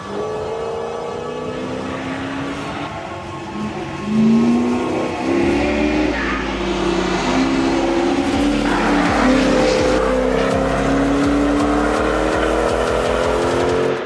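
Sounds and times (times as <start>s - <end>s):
car engine accelerating past: 4.0s - 14.0s.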